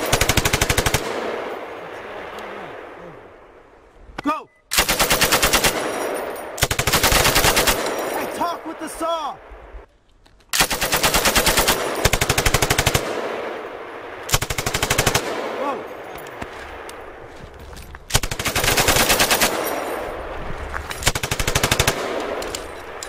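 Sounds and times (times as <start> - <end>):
machine gun automatic fire: 0.0 - 1.4, 4.7 - 8.3, 10.6 - 13.5, 14.3 - 15.5, 18.1 - 20.1, 21.0 - 23.0.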